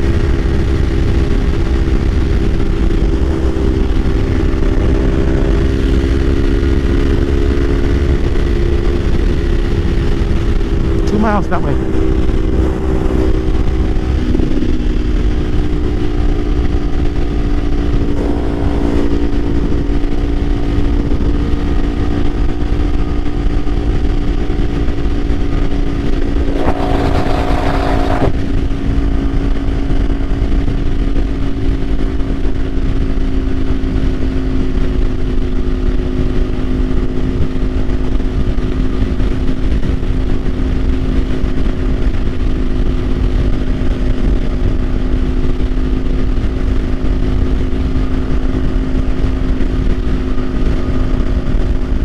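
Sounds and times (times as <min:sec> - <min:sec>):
motorcycle engine cruising: 0:00.0 - 0:52.0
brief rush of noise: 0:26.3 - 0:28.6.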